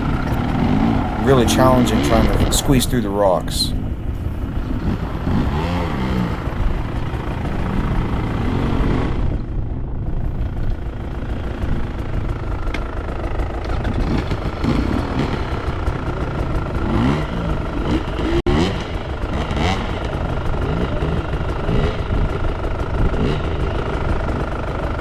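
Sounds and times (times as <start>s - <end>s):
dirt bike engine revving: 0.0s - 9.3s, 16.8s - 22.4s.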